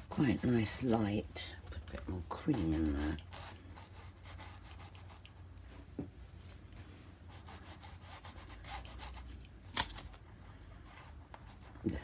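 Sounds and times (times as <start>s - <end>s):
paintbrush scrubbing: 2.1s - 5.4s.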